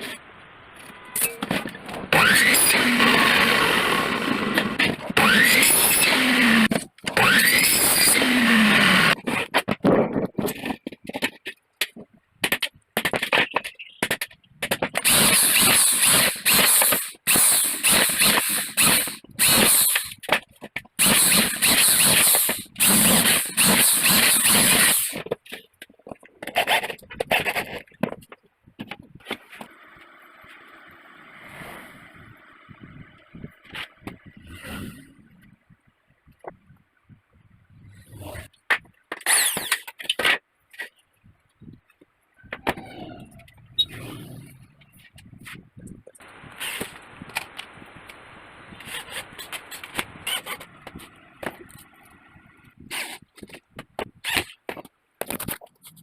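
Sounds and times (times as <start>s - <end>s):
power tools cutting aluminium: 2.1s - 9.2s, 15.0s - 20.2s, 21.0s - 25.2s, 39.2s - 39.9s.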